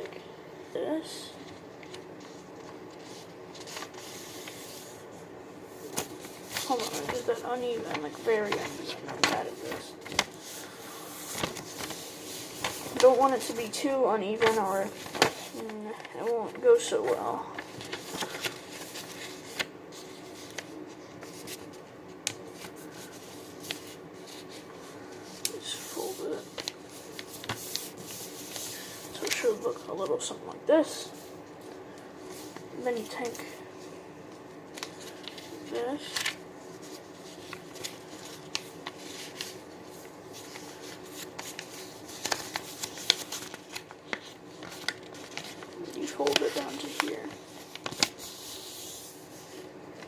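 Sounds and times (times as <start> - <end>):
paper rustling and crinkling: 1.3 - 5.1, 5.8 - 50.0.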